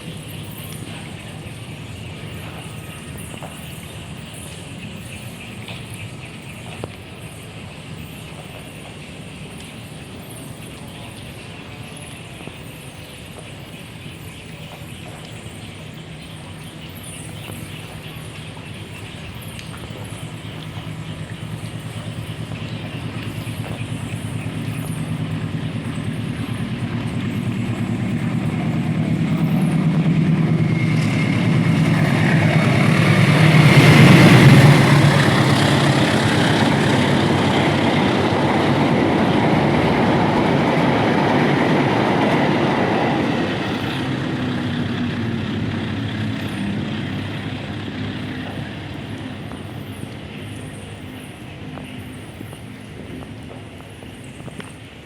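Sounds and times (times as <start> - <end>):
locomotive engine hum: 0.0 - 55.0
train carriages running past: 0.0 - 55.0.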